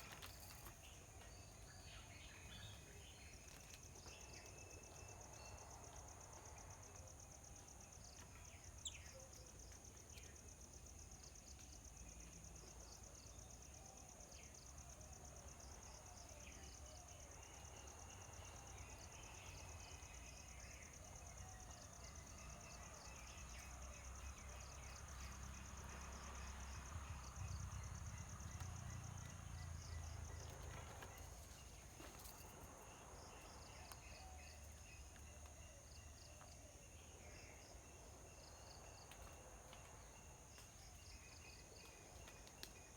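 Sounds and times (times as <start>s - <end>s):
faint bird chirps: 8.4s - 10.4s.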